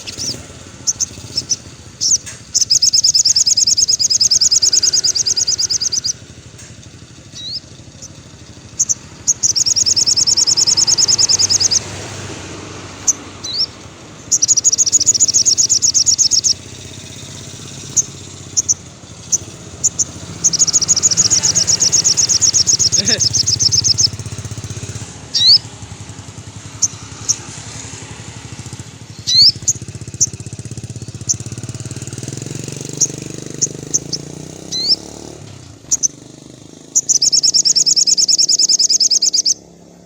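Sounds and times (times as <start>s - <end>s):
bird short chips: 0.0s - 12.0s, 13.0s - 25.7s
bird high-pitched trill: 0.0s - 39.8s
low engine-like hum: 0.0s - 40.0s.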